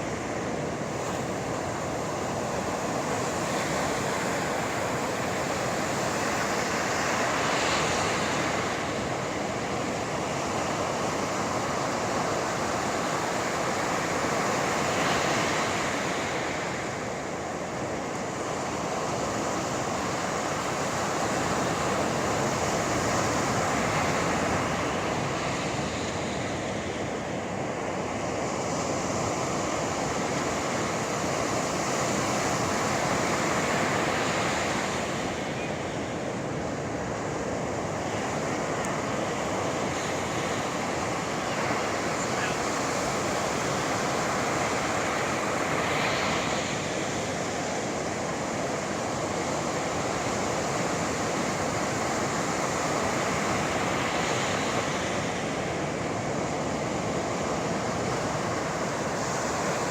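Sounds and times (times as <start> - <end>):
waves breaking on shore: 0.0 - 59.9.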